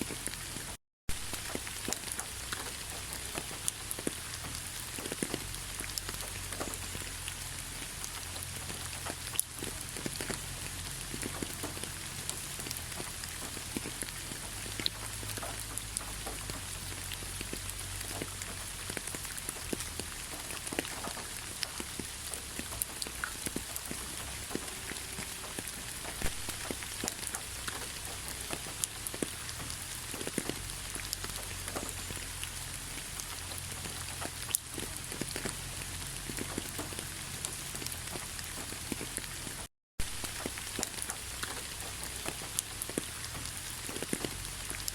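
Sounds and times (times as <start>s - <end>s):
raindrops ticking on a surface: 0.0s - 44.9s.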